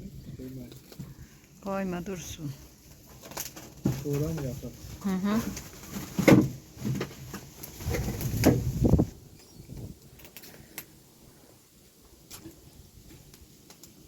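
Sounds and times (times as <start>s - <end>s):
hard objects knocking and clunking: 5.8s - 8.8s.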